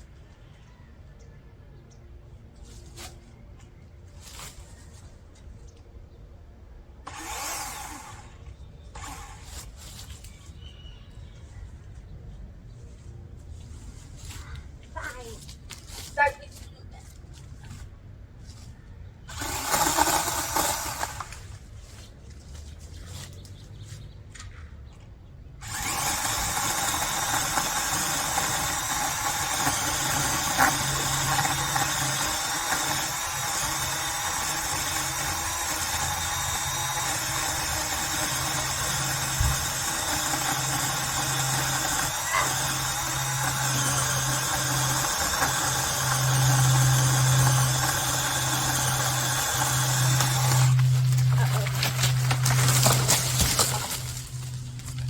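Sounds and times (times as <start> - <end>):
chainsaw cutting tree trunk: 7.1 - 8.3, 9.0 - 9.6, 19.3 - 21.5, 25.6 - 55.0.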